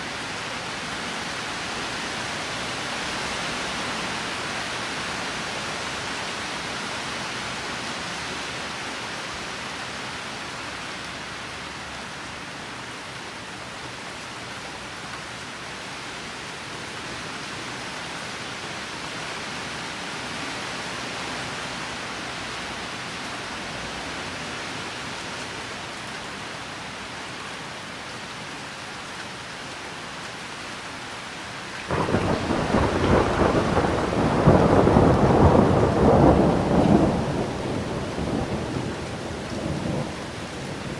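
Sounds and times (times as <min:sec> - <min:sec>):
steady rain falling: 0:00.0 - 0:40.9
thunder rumbling: 0:31.9 - 0:40.2.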